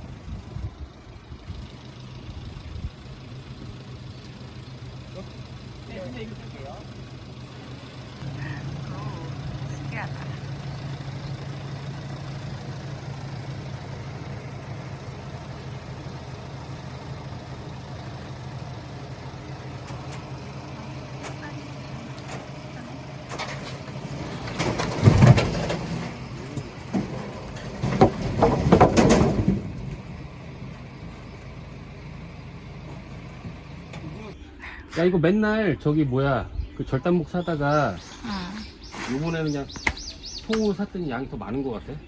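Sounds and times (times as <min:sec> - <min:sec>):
diesel truck engine running: 0:00.0 - 0:42.0
logs clattering and thudding: 0:22.1 - 0:30.9.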